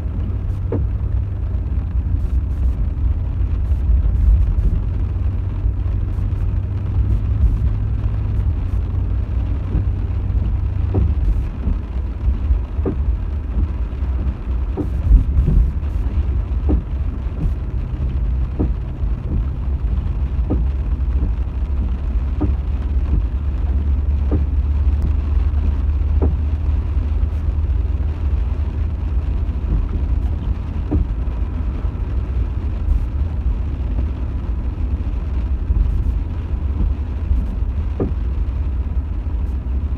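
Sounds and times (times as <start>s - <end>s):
road and engine rumble: 0.0s - 39.9s
faint tick: 8.4s - 19.5s, 20.4s - 23.4s, 29.3s - 32.2s.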